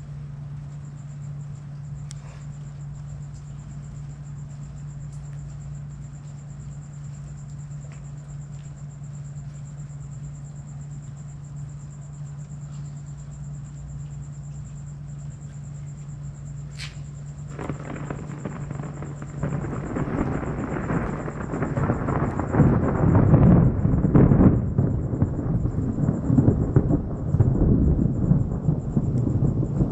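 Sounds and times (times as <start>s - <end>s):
rumbling thunder: 17.4s - 29.9s
thunder crack: 17.5s - 29.9s.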